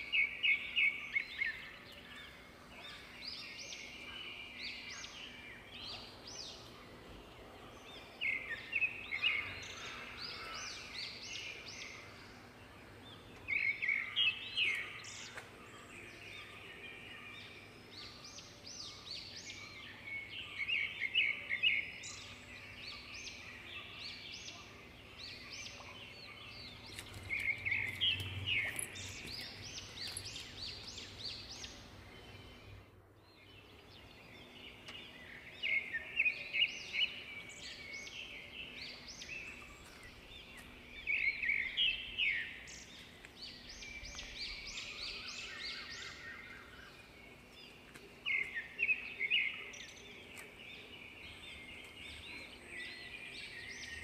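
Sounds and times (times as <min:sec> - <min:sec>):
birds chattering: 0:00.0 - 0:32.9
faint outdoor background: 0:00.0 - 0:54.0.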